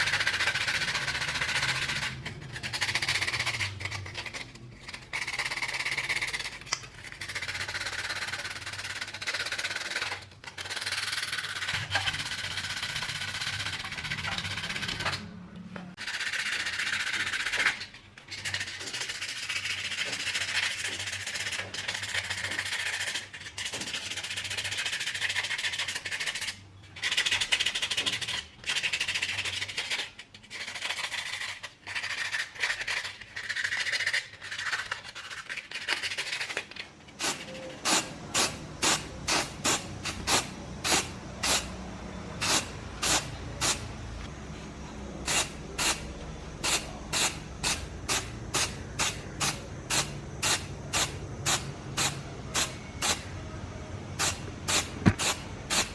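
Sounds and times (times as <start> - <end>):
sanding strokes: 0.0 - 15.2
spray-paint puffs: 37.2 - 41.7, 42.4 - 44.0, 45.2 - 53.3, 54.1 - 55.9.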